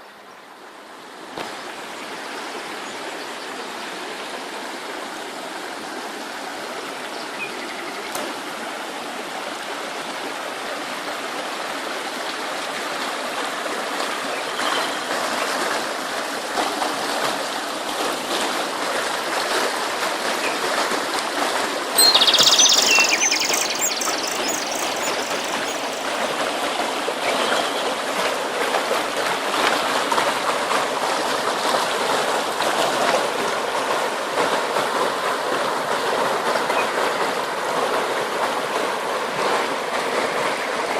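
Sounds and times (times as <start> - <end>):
stream of water running: 0.0 - 40.9
faint bird chirps: 22.0 - 26.3.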